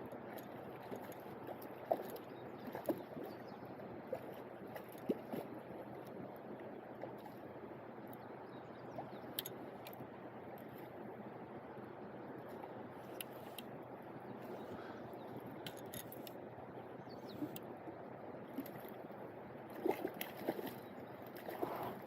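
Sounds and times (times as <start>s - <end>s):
small sharp clicks and splashes: 0.0s - 7.5s, 8.1s - 11.0s, 12.4s - 13.8s, 15.6s - 16.4s, 18.4s - 19.1s, 19.7s - 22.0s.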